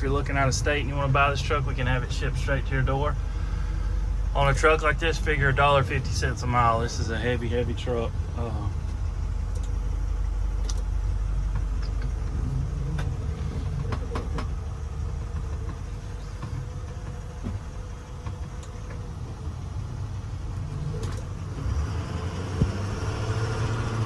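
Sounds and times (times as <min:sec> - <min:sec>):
diesel engine running: 0:00.0 - 0:24.0
light clicks and knocks: 0:11.5 - 0:19.0.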